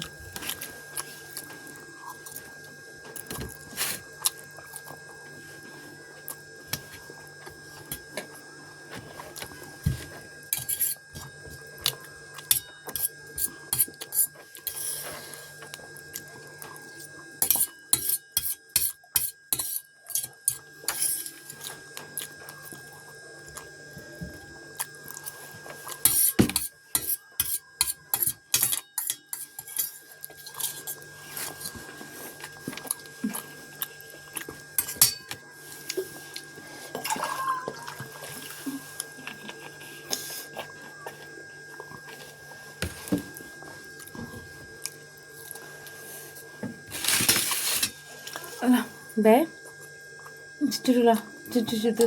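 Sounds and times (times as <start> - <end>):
utensils clicking on a dish: 26.0 - 30.8.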